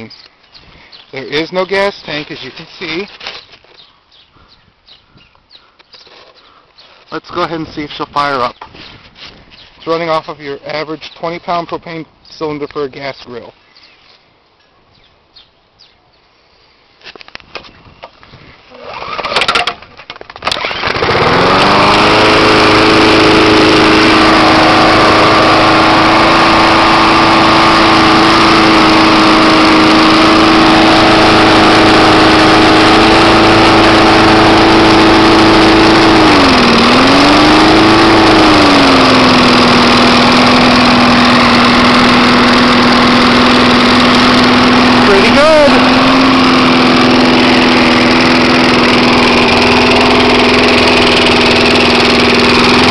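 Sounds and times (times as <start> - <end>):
lawn mower engine pull-started: 18.7 - 52.9.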